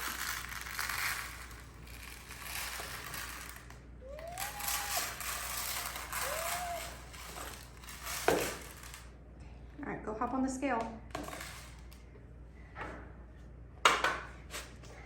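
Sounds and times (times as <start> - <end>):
dry rice rattling into bucket: 0.0 - 9.0.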